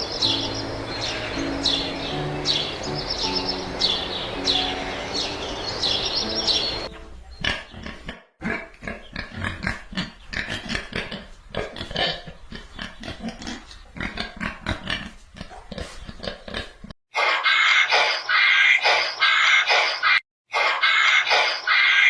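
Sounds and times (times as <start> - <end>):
birds chirping: 0.0 - 8.0
music: 0.1 - 7.2
pigs grunting: 7.4 - 16.9.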